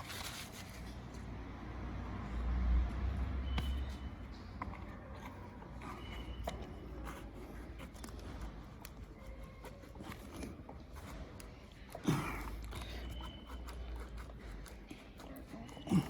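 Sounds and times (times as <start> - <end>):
handling clicks taps and scrapes: 3.5 - 16.0.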